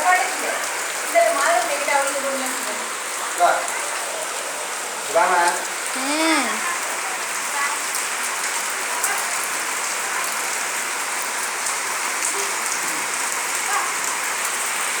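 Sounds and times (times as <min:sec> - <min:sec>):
steady rain pouring: 0:00.0 - 0:15.0.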